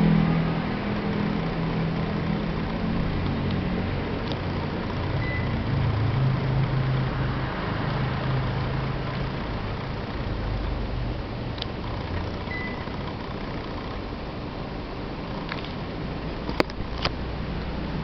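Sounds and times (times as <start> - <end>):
air conditioner running: 0.0 - 18.0
short high beep: 5.2 - 5.6, 12.5 - 12.8.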